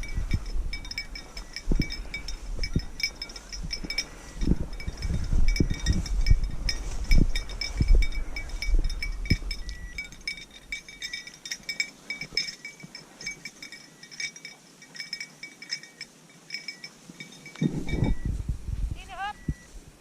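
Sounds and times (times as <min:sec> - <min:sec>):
small bell tinkling: 0:00.0 - 0:18.4
low wind rumble: 0:00.0 - 0:20.0.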